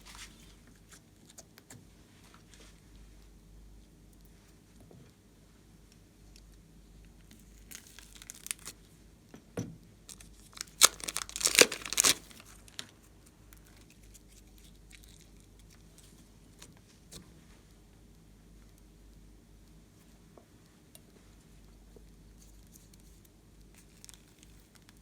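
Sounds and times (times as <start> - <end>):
slime crackling in hands: 7.4 - 8.8, 10.2 - 13.0.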